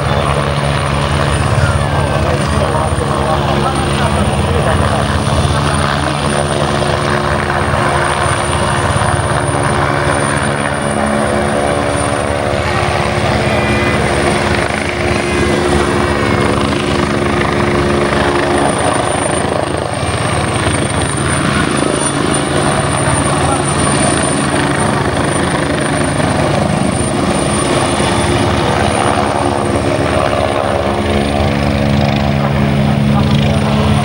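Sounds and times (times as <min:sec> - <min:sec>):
helicopter hovering: 0:00.0 - 0:34.0
thin high whine: 0:10.1 - 0:19.0.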